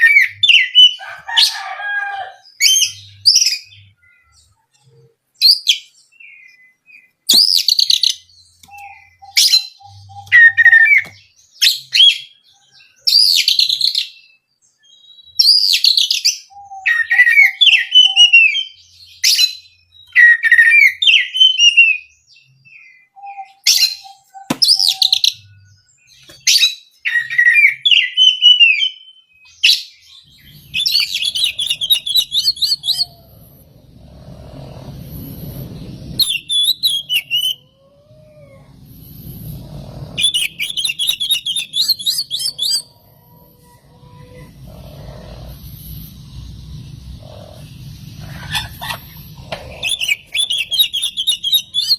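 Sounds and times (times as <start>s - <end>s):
songbird whistling and chattering: 2.5s - 22.1s, 22.7s - 51.9s
low rumble: 30.2s - 51.9s.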